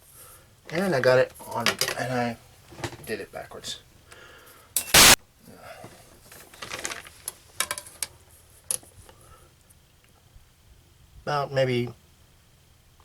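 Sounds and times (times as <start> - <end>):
loud rushing burst: 5.0 - 5.2.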